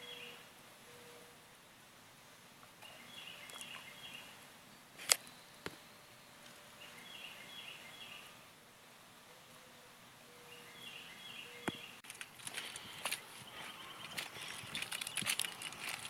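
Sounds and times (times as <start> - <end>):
bird chirping: 0.0 - 1.2, 2.8 - 4.4, 5.2 - 8.4, 10.3 - 16.0.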